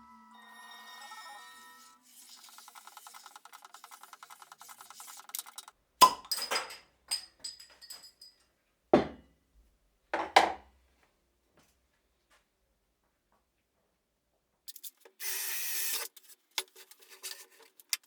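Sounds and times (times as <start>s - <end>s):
tools rattling: 2.7s - 8.4s.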